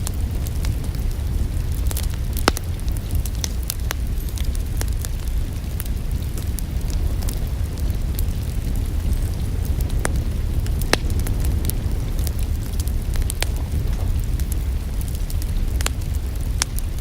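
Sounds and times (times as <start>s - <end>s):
low rumble of fire: 0.0s - 17.0s
wood fire crackling: 0.0s - 17.0s.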